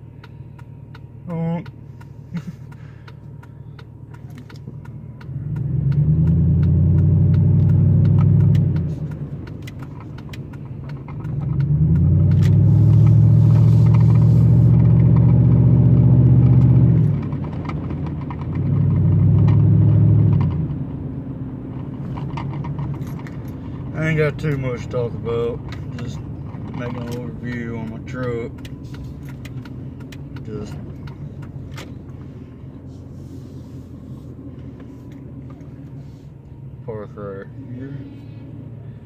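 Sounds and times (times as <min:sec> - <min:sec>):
truck engine droning: 0:00.0 - 0:39.0
light rattling and clicking: 0:06.6 - 0:12.6, 0:21.7 - 0:32.3.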